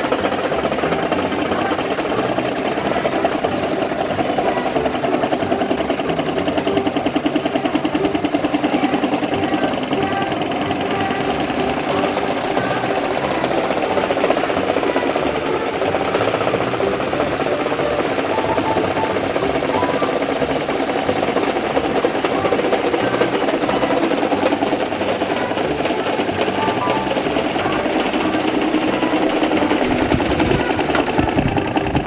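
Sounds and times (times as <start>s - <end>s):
electric fan rattling: 0.0s - 32.0s.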